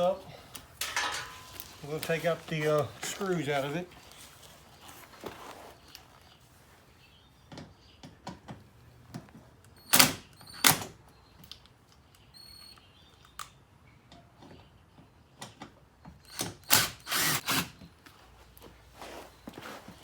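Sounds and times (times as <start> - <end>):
power driver spinning out screws: 16.3 - 17.8.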